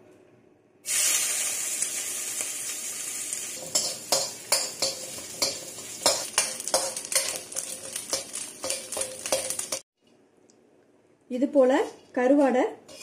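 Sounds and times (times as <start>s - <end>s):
fish sizzling in hot oil: 0.9s - 9.8s
ladle scraping and knocking wok: 3.6s - 9.8s.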